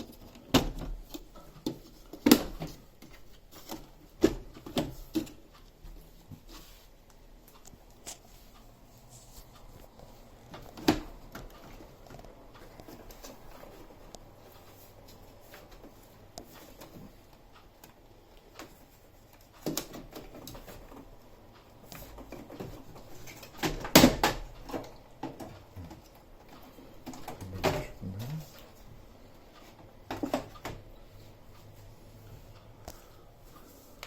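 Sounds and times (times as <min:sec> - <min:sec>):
plastic panels clicking and knocking: 0:22.1 - 0:26.1.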